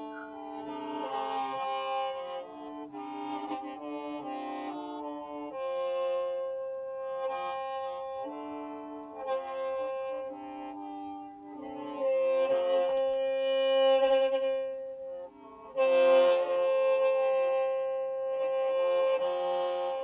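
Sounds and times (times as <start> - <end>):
bamboo mouth organ chords: 0.0 - 2.7.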